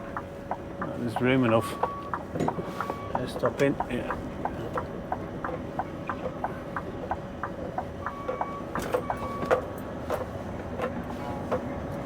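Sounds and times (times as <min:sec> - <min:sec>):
turn-signal relay ticking: 0:00.0 - 0:09.2
truck engine idling hum: 0:00.0 - 0:12.0
high beeps: 0:01.6 - 0:02.2.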